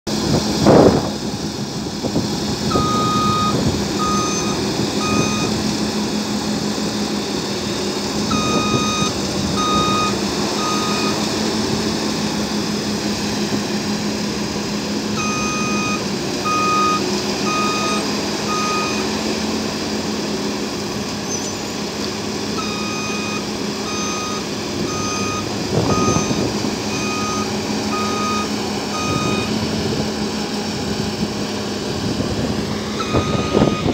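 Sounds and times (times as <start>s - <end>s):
combine harvester humming: 0.1s - 33.9s
high beeping alarm: 2.7s - 5.6s, 8.3s - 11.3s, 15.2s - 19.1s, 22.6s - 29.6s, 33.0s - 33.9s.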